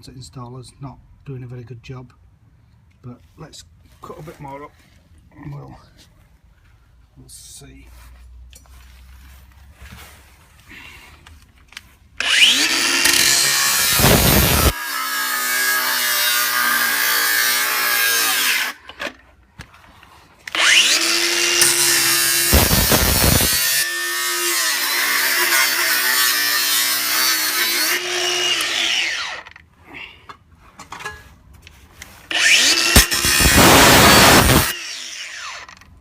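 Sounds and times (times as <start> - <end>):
power saw cutting metal: 12.2 - 19.1, 20.5 - 29.6, 32.3 - 35.8.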